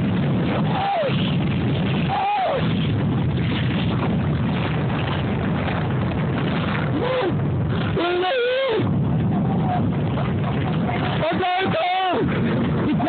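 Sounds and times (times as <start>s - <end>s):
tornado winds buffeting microphone: 0.0s - 13.0s
person crying out: 7.0s - 7.4s, 8.0s - 8.9s.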